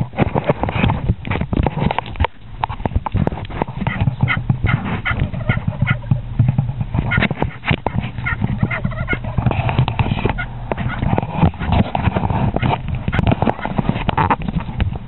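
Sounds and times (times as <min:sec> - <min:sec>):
steady low rumble: 0:00.0 - 0:15.0
turkey hen yelps and clucks: 0:03.8 - 0:06.3, 0:07.0 - 0:11.6.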